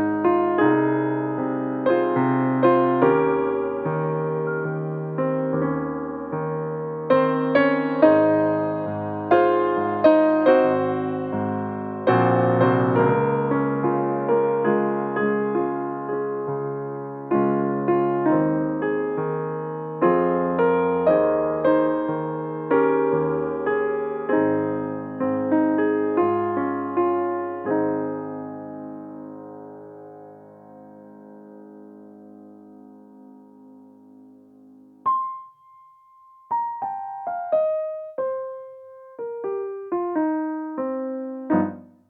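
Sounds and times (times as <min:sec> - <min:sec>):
slow chordal piano piece: 0:00.0 - 0:42.0.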